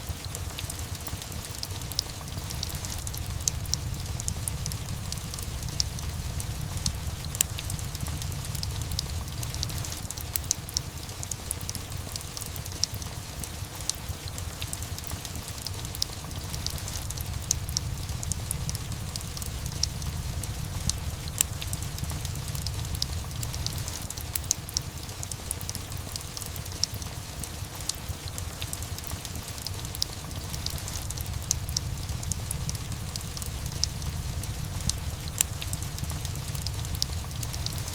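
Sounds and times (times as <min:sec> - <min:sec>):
fireplace crackling: 0:00.0 - 0:37.9
steady rain: 0:00.0 - 0:37.9
low rumble: 0:02.0 - 0:10.2, 0:16.4 - 0:24.2, 0:30.4 - 0:37.9.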